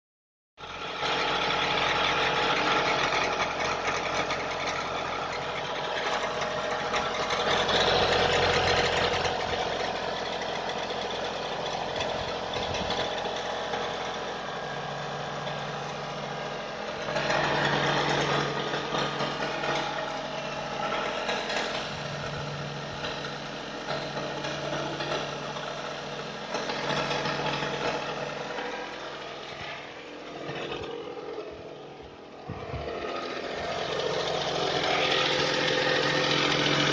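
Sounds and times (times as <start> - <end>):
car engine running: 0.6 - 36.9
mechanical engine noises: 0.6 - 36.9.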